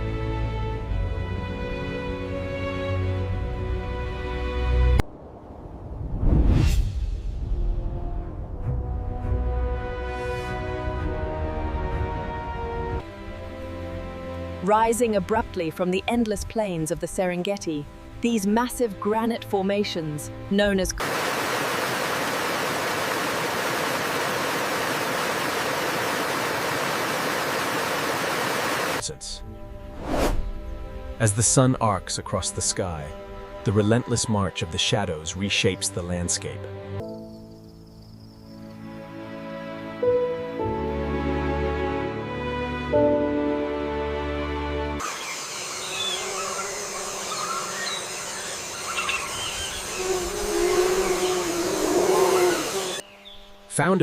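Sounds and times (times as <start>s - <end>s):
steady outdoor hiss: 13.1s - 29.9s, 45.0s - 54.0s
rush of falling water: 21.0s - 29.0s
high chirps of birds or insects: 37.0s - 39.7s, 45.0s - 54.0s
held music chord: 38.8s - 45.0s.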